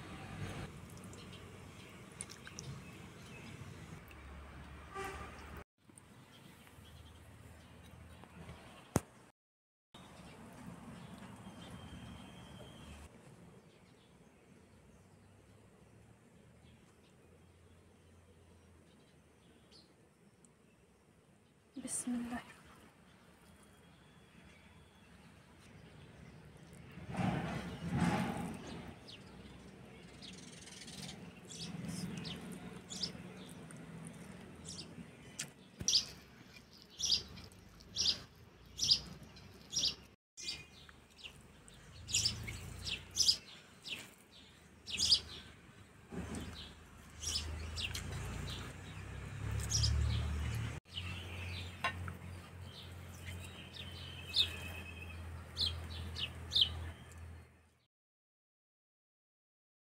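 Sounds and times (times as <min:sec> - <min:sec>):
small birds chirping: 0:00.9 - 0:04.2, 0:28.6 - 0:57.5.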